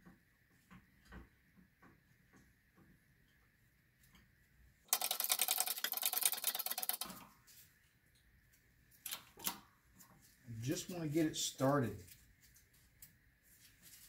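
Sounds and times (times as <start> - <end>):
rapid dense clicking and rattling: 4.9 - 7.3.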